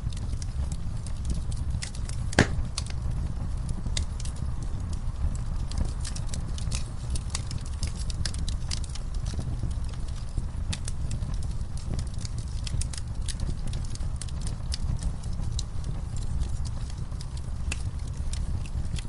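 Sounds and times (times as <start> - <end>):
burning wood crackling and popping: 0.0 - 19.0
campfire flames rumbling: 0.0 - 19.0.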